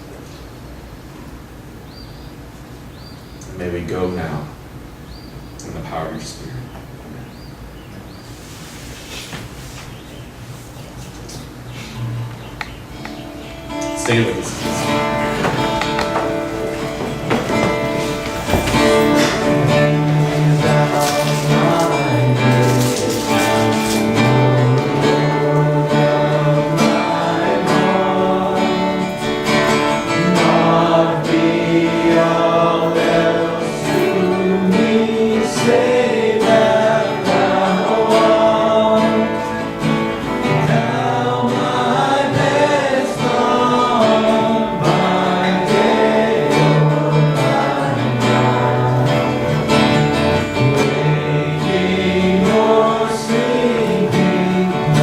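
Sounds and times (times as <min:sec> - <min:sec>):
guitar accompaniment: 0:11.2 - 0:55.0
voices singing worship song: 0:12.8 - 0:55.0.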